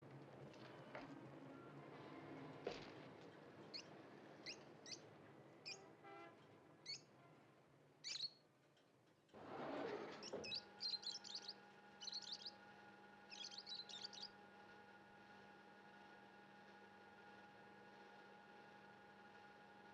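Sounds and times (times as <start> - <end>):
small birds chirping: 3.7 - 5.8, 6.8 - 7.1, 8.0 - 8.4, 10.2 - 12.6, 13.3 - 14.3
steady low hum: 10.6 - 15.2.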